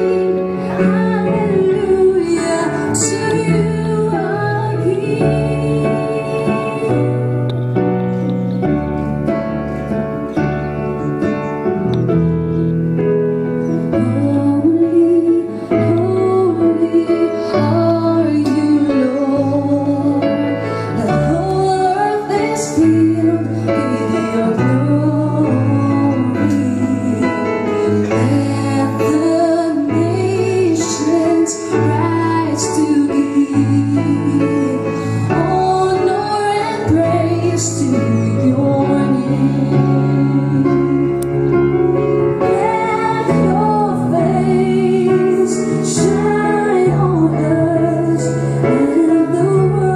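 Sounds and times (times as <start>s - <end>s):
woman singing slow song: 0.0s - 7.6s, 14.0s - 41.4s, 42.4s - 49.9s
instrumental backing with bass: 0.0s - 49.9s.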